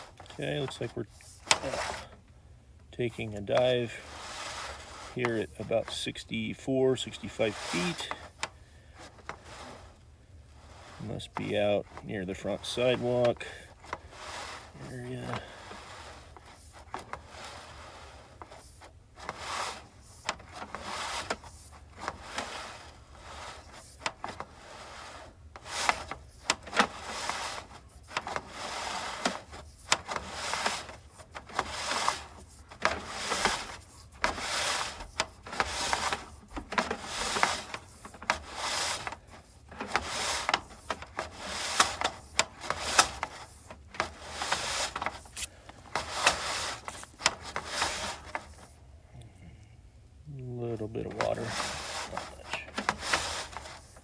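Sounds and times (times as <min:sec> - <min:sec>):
cable rubbing through hands: 0:00.0 - 0:02.1, 0:03.0 - 0:10.0, 0:10.6 - 0:48.8, 0:50.7 - 0:54.0.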